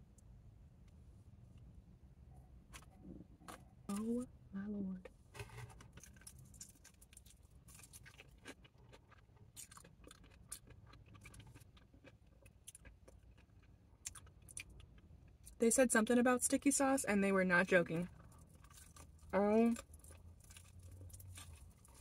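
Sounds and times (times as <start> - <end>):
person chewing: 6.0 - 15.6, 18.2 - 22.0.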